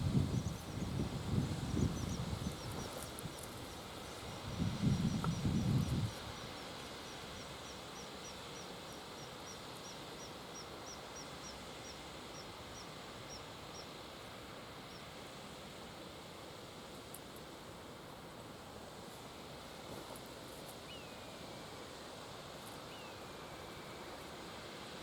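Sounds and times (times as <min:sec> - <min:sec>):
wind buffeting microphone: 0:00.0 - 0:06.4.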